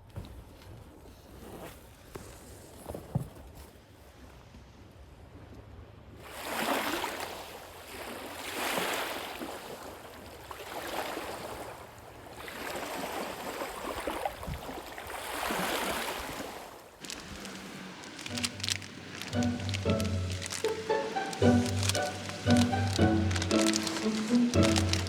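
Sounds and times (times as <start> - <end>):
lake waves washing onto shore: 17.0 - 25.0.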